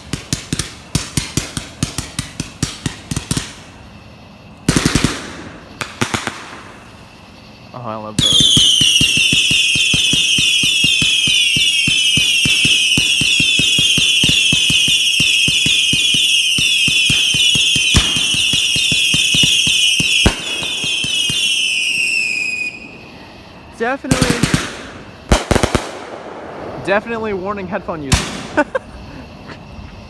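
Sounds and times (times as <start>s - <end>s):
crackling pops: 0.0s - 3.6s, 4.6s - 6.8s, 11.9s - 22.0s, 24.1s - 27.0s
firework bangs: 0.0s - 30.0s
whistling fireworks: 0.0s - 30.0s.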